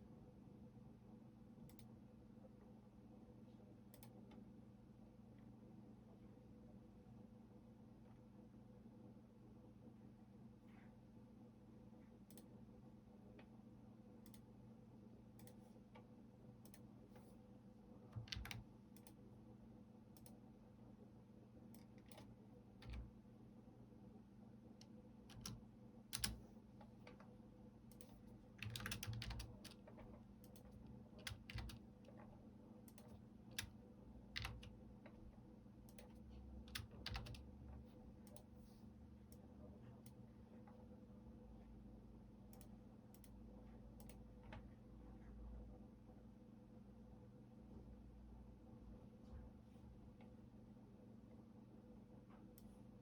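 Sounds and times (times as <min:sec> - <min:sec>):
faint steady hum: 0:00.0 - 0:53.0
computer keyboard typing: 0:18.2 - 0:19.2, 0:21.8 - 0:23.2, 0:25.3 - 0:27.2, 0:27.9 - 0:32.3, 0:32.9 - 0:35.2, 0:35.9 - 0:37.5.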